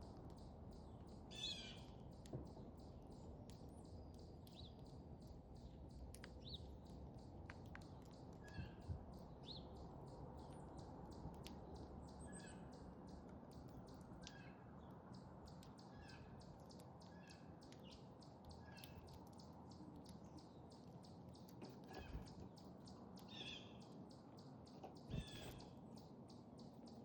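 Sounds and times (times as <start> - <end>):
faint high ticks: 0.0 - 12.0
faint songbird chirps: 0.0 - 27.0.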